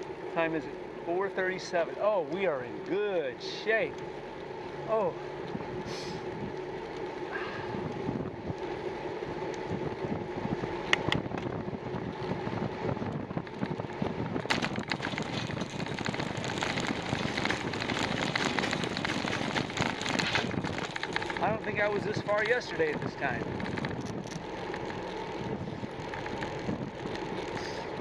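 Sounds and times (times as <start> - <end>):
bicycle tyre and road noise: 0.0 - 28.0
faint steady hum: 0.0 - 28.0
wind buffeting microphone: 5.4 - 28.0
scattered clicks: 14.4 - 27.8.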